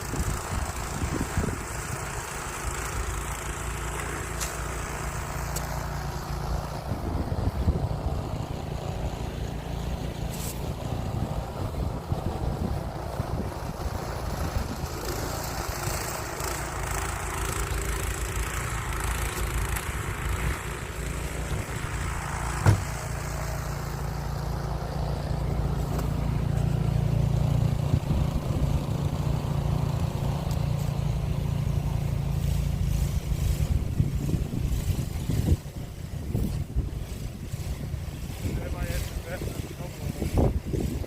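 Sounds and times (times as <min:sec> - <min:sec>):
snow blower engine running: 0:00.0 - 0:41.0
sharp knock: 0:22.6 - 0:23.0.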